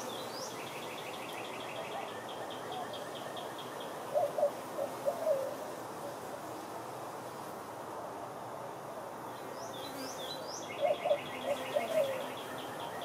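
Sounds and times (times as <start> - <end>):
birds chirping and trilling: 0.0 - 5.6, 9.3 - 13.0
outdoor background noise: 0.0 - 13.0
low wavering bird calls: 0.7 - 5.6, 10.6 - 13.0.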